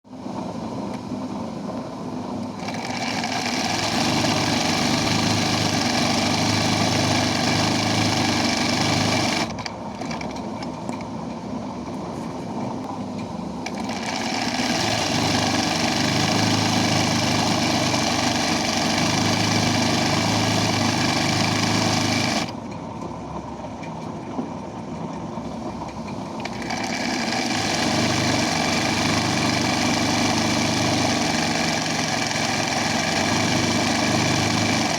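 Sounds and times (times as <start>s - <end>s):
embroidery machine running: 2.6s - 10.4s, 13.6s - 22.6s, 26.3s - 34.9s.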